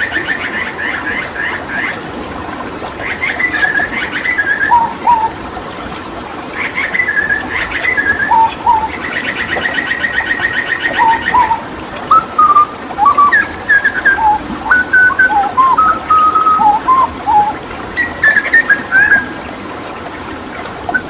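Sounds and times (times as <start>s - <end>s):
bird whistled notes: 11.0s - 19.3s.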